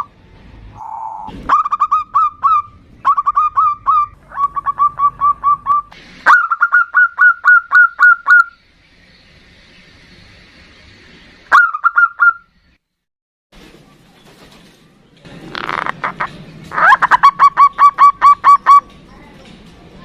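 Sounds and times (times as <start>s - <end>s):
dove cooing: 0.8s - 8.4s.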